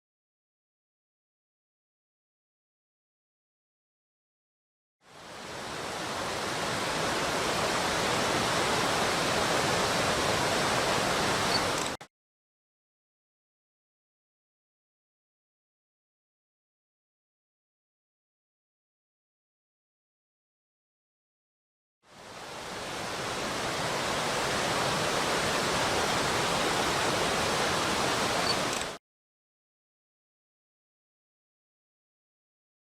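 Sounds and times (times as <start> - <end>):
water rushing over rocks: 5.1 - 12.0, 22.1 - 29.0.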